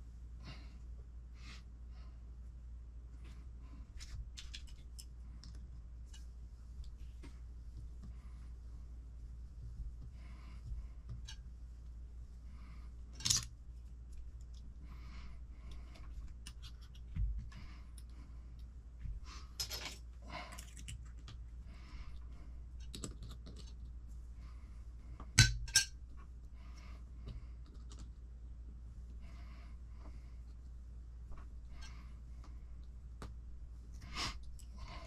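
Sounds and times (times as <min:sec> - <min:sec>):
small hard parts clicking and clinking: 0:13.1 - 0:13.5.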